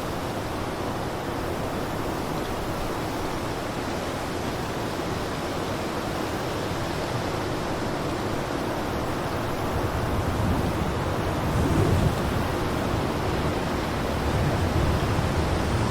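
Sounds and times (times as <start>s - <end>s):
blizzard wind rushing: 8.2s - 15.9s.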